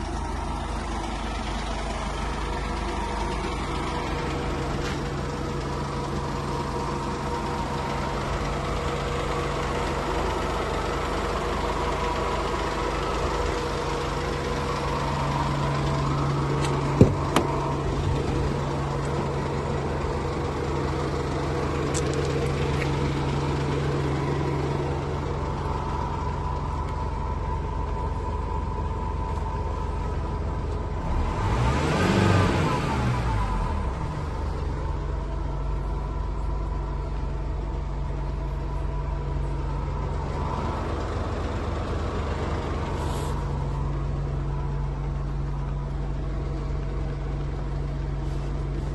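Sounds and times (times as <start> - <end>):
van engine idling: 0.0 - 48.9
sharp knocks: 16.7 - 17.6.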